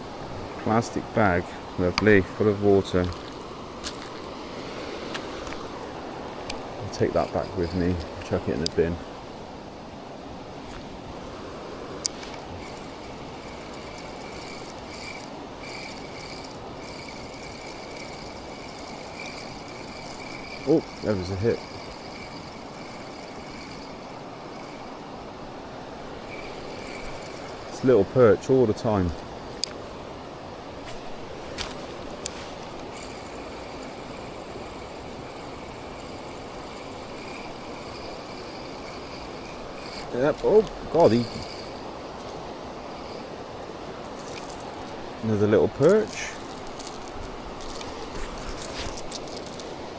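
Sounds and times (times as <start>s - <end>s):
fishing reel whirring: 0.0s - 49.9s
weir water rushing: 0.0s - 49.9s.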